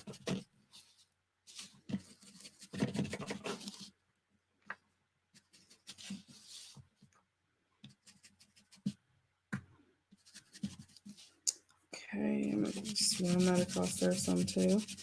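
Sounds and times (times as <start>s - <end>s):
scratchy rubbing on paper: 0.0s - 3.9s, 5.4s - 6.8s, 7.9s - 9.0s, 10.2s - 11.4s, 12.4s - 15.0s.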